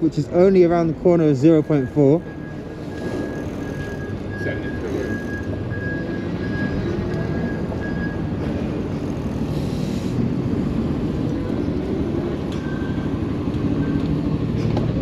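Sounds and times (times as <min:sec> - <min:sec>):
tyre road rumble: 0:00.0 - 0:15.0
wind: 0:00.0 - 0:15.0.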